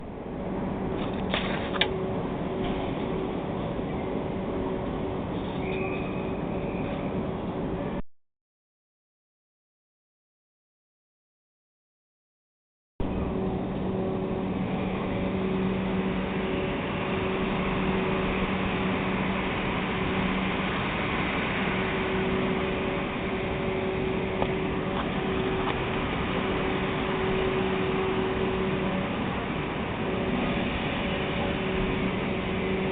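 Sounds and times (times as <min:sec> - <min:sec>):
low constant hum: 0:00.0 - 0:08.0, 0:13.0 - 0:32.9
steam hissing: 0:14.3 - 0:32.9.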